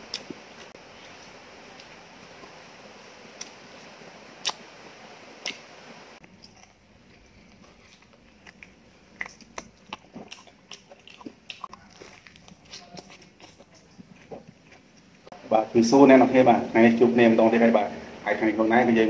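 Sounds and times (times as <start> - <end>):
steady hiss: 0.0 - 6.2
person chewing meat: 0.0 - 15.4.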